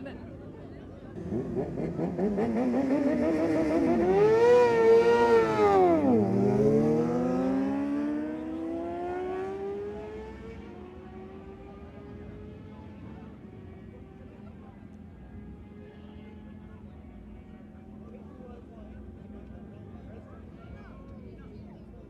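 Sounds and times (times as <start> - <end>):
motorcycle accelerating at full throttle: 1.2 - 14.4.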